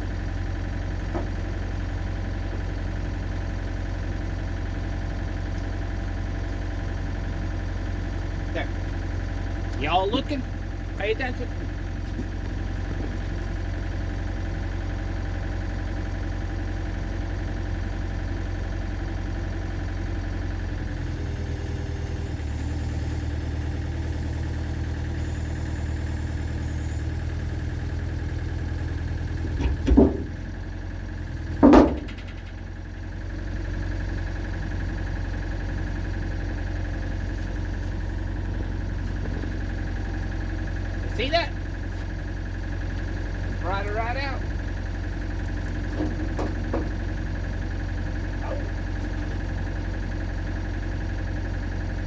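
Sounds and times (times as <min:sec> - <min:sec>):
excavator engine: 0:00.0 - 0:52.0.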